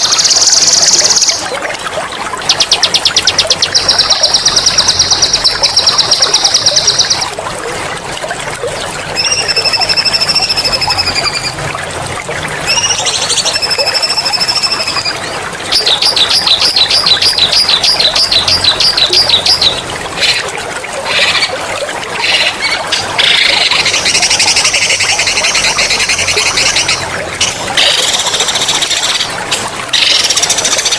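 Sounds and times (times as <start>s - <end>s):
trickling water: 0.0s - 30.9s
songbird singing: 12.7s - 20.4s.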